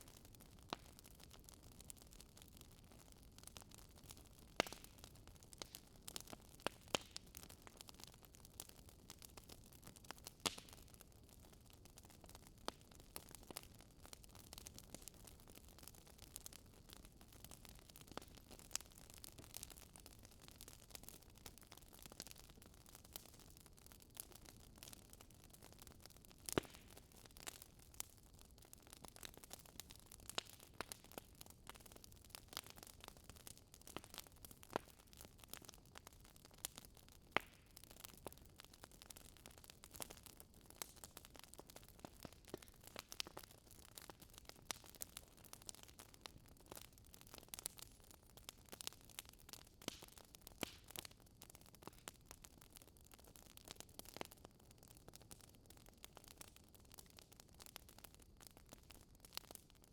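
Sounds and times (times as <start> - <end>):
wood fire crackling: 0.0 - 59.8.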